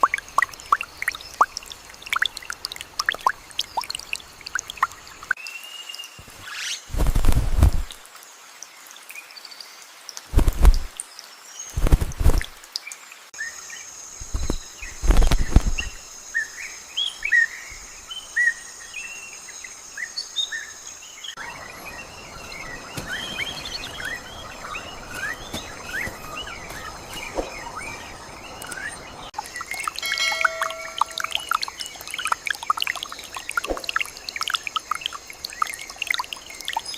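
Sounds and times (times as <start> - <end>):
birds chirping and whistling: 21.4 - 32.4.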